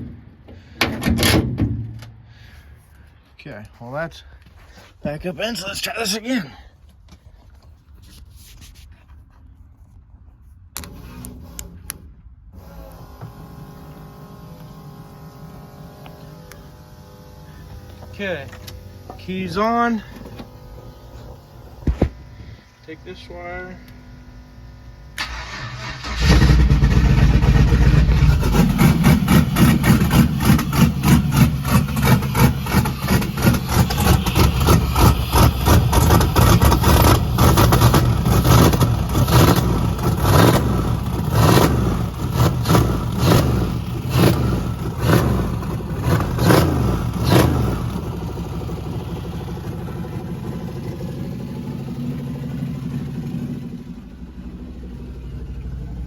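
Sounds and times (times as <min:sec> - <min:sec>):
engine cranking on starter: 0:25.1 - 0:56.0.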